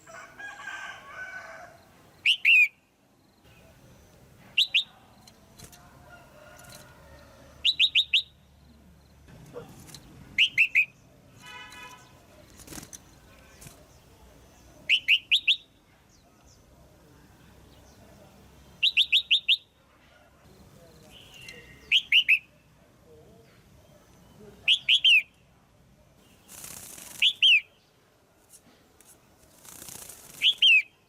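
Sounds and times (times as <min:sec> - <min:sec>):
bird chirping: 0:02.1 - 0:05.5, 0:07.5 - 0:16.8, 0:17.4 - 0:19.8, 0:20.5 - 0:25.5, 0:26.2 - 0:28.1.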